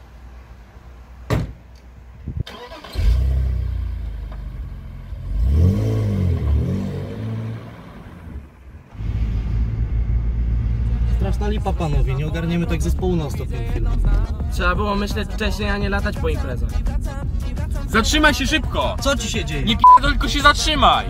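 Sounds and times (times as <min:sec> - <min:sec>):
car driving road noise: 0:00.0 - 0:21.0
car door shutting: 0:01.3 - 0:01.7
car engine starting and revving: 0:02.4 - 0:21.0.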